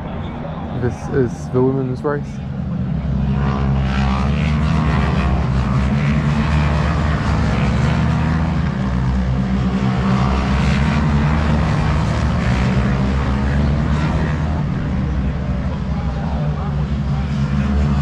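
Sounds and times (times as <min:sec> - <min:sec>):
racing motorcycle engines: 0:00.0 - 0:18.0.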